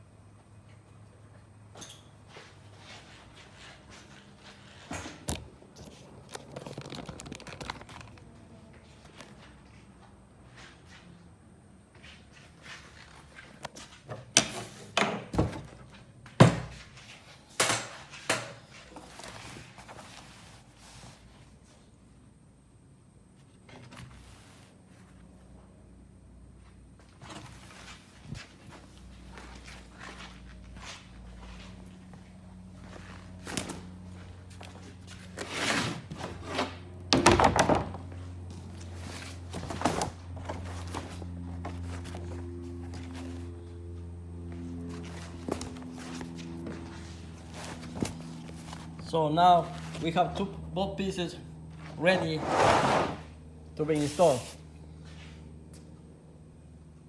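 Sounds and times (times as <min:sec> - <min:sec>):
steady low hum: 0:37.9 - 0:57.0
thunks and rustling handling: 0:44.8 - 0:50.2.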